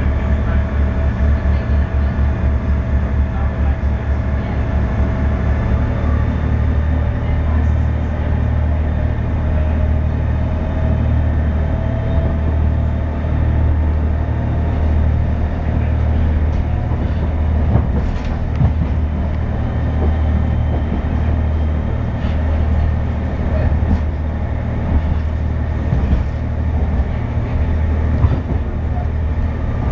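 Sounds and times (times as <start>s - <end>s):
train rumble on board: 0.0s - 29.9s.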